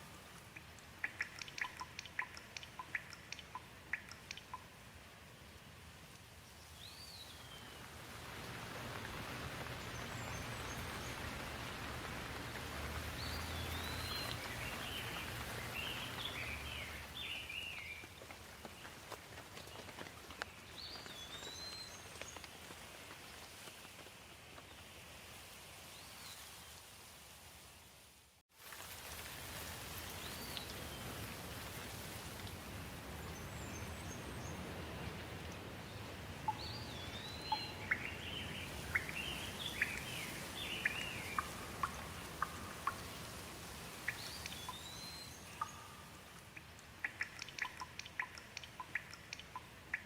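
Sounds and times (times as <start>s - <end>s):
steady rain: 0.0s - 50.0s
birds chirping: 1.0s - 4.7s, 8.6s - 18.1s, 33.1s - 43.3s, 43.9s - 50.0s.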